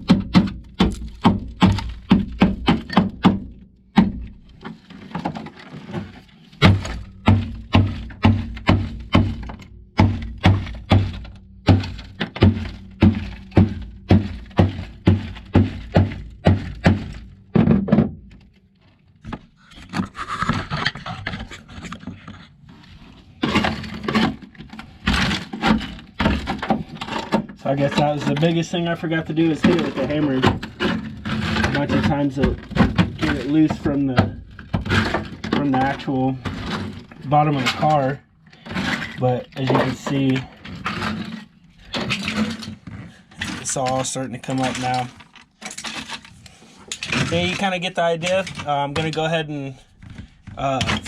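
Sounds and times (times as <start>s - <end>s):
hammer striking frozen mat: 0.0s - 4.3s, 6.6s - 18.2s
brittle mat crunching: 0.4s - 51.0s.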